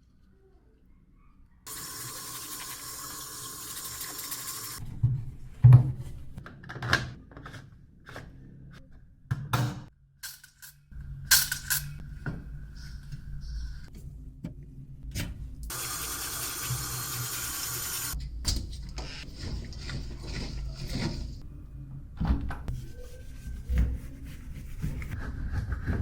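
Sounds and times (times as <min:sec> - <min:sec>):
rubbing and wiping: 0:22.7 - 0:26.0.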